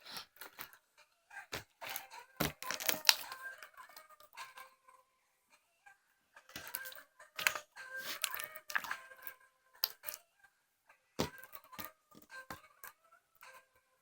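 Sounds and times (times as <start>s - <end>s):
slime squeezed clicking and popping: 2.4s - 3.4s.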